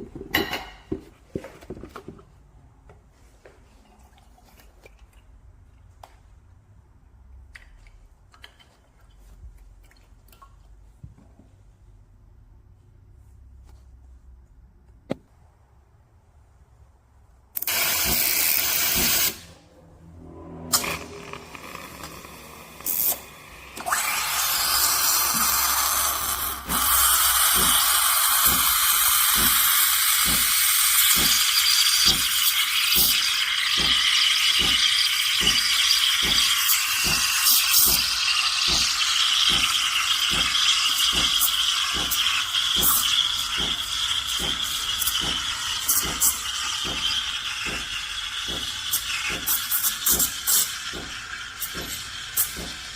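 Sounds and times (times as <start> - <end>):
espresso machine running: 20.7 - 52.9.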